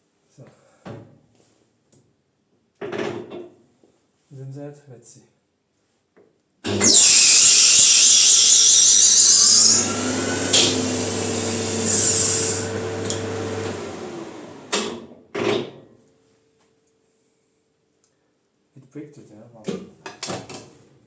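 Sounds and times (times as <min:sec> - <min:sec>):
lathe motor hum: 0:06.7 - 0:14.8.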